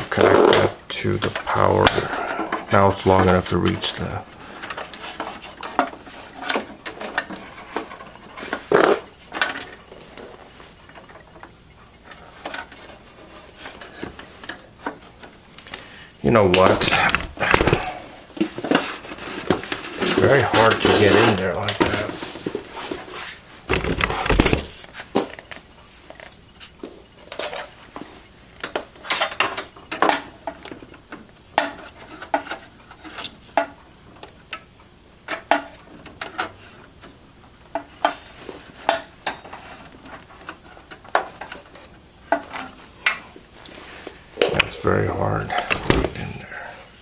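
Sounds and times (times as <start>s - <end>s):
heavy thump: 45.5s - 46.6s.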